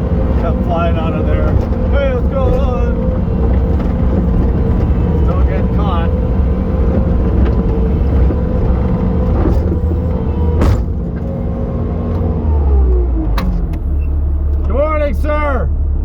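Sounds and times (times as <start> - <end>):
diesel engine rumbling with whine: 0.0 - 16.0
sharp knocks: 9.3 - 11.4.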